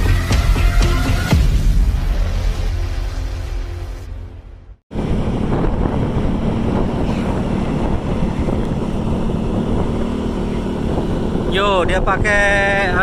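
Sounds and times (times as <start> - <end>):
vehicle rumble: 1.9 - 13.0
wind buffeting microphone: 4.9 - 13.0.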